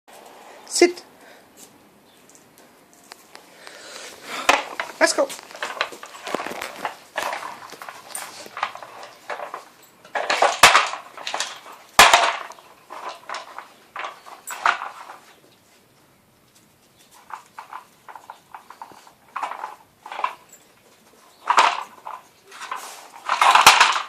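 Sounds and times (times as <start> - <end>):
plastic treat puzzle scraping: 3.3 - 15.2.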